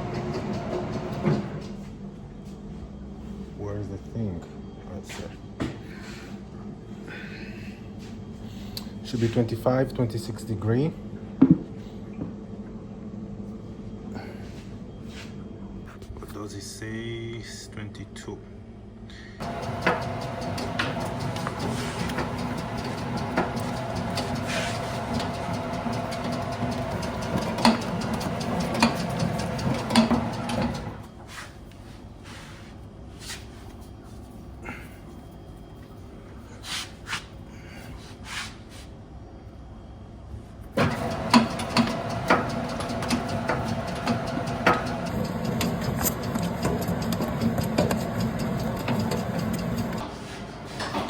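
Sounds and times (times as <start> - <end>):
dough mixer motor humming: 0.0 - 1.6, 19.4 - 31.0, 40.8 - 50.0.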